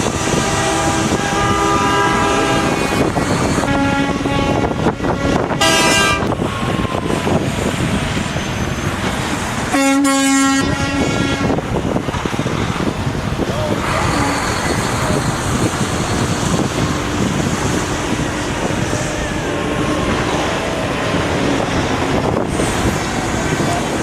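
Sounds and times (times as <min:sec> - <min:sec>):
truck air horn blasts: 0:00.0 - 0:06.3, 0:09.7 - 0:11.6, 0:13.9 - 0:19.4
trucks rolling by: 0:00.0 - 0:24.0.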